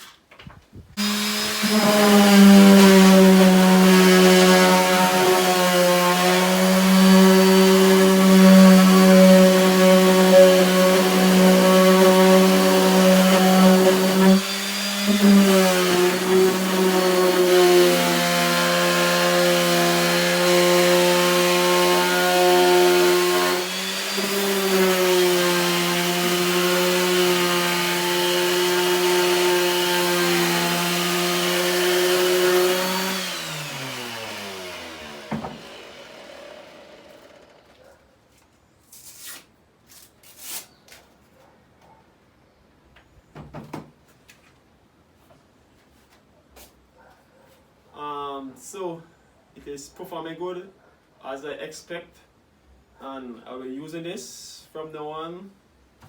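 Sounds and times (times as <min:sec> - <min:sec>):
electric orbital sander running: 0:01.0 - 0:37.8.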